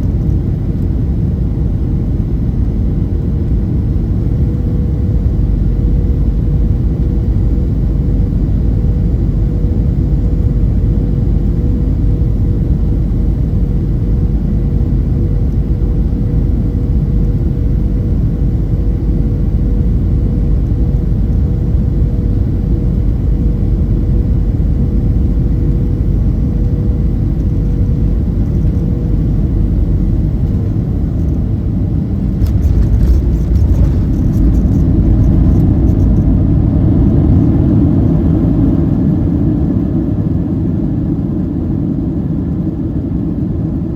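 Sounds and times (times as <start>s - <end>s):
aircraft engines and airflow rumble: 0.0s - 43.9s.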